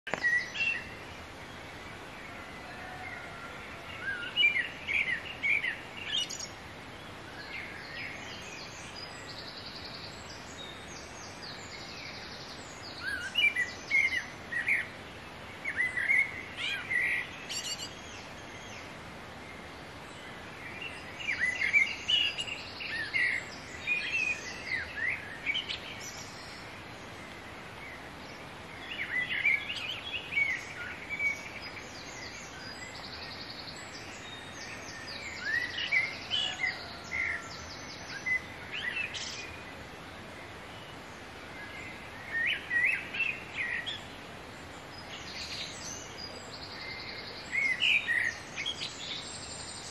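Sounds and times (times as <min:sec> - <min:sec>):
songbird singing: 0:00.0 - 0:49.9
background hiss: 0:00.1 - 0:49.9
faint bird chirps: 0:15.7 - 0:18.9.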